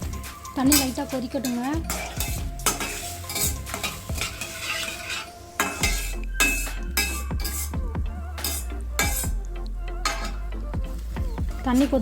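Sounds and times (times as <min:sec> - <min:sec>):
water coming to a boil: 0:00.0 - 0:07.8
light sizzle: 0:00.0 - 0:12.0
spoon stirring and scraping: 0:00.0 - 0:12.0.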